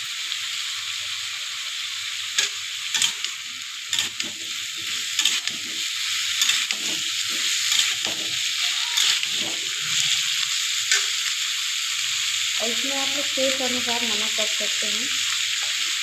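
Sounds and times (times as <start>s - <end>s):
vegetables sizzling in oil: 0.0s - 16.0s
metal spatula scraping pan: 2.9s - 11.2s.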